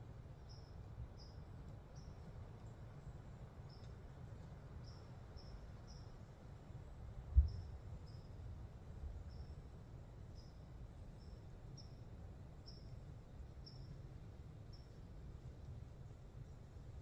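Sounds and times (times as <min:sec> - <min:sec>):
low steady rumble: 0:00.0 - 0:17.0
small bird chirping: 0:00.4 - 0:02.2, 0:04.8 - 0:06.1, 0:12.6 - 0:13.0, 0:13.6 - 0:14.0.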